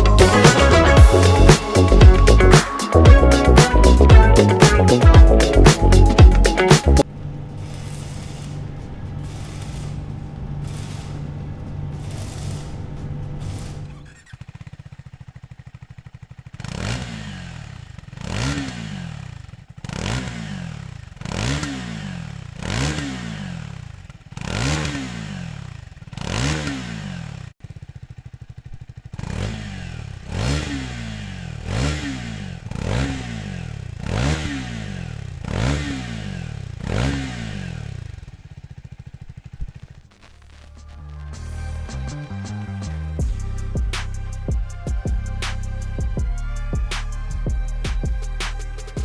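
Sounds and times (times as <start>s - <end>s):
motorcycle engine idling and revving: 0.0s - 49.0s.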